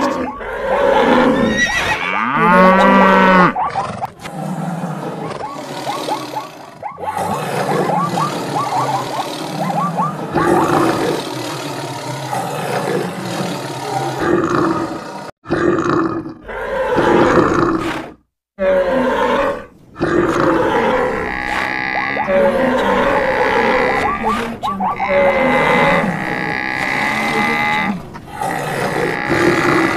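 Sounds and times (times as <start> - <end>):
animals roaring and grunting: 0.0 - 29.9.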